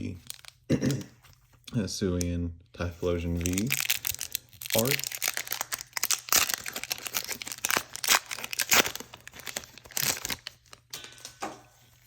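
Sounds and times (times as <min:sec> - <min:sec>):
foil wrapper crinkling and tearing: 0:00.0 - 0:01.0, 0:03.2 - 0:10.9.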